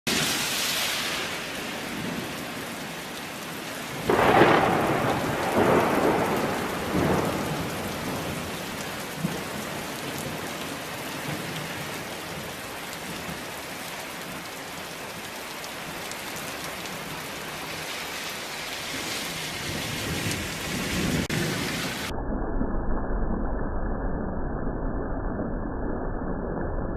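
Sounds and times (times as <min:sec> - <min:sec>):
steady rain: 0:00.1 - 0:22.1
thunderclap with rolling rumble: 0:03.9 - 0:13.4, 0:19.6 - 0:22.2.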